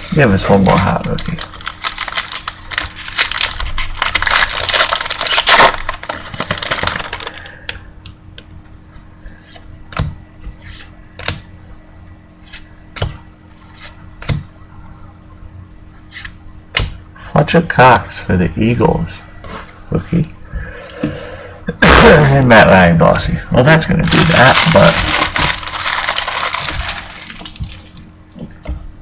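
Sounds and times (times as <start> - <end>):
plastic wrapper tearing and crinkling: 0.5 - 7.5, 21.8 - 22.4, 24.0 - 28.0.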